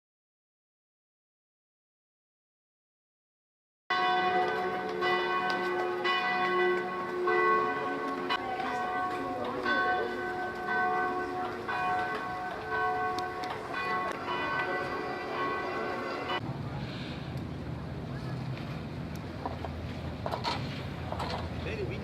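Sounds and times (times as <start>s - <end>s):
church bells pealing: 3.9s - 16.4s.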